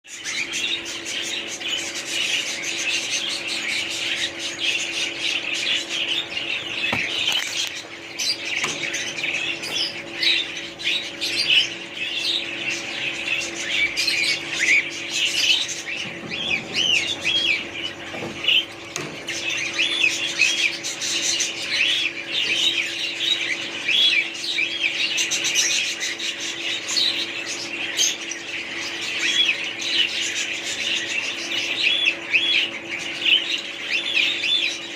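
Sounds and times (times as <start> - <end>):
small birds chirping and squawking: 0.0 - 34.9
steady low hum: 0.1 - 34.9.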